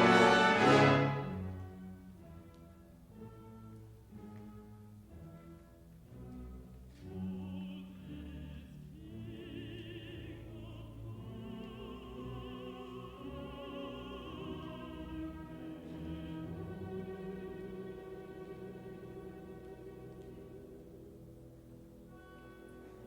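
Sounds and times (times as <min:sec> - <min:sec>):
symphony orchestra: 0:00.0 - 0:23.0
contralto voice singing: 0:07.1 - 0:17.8.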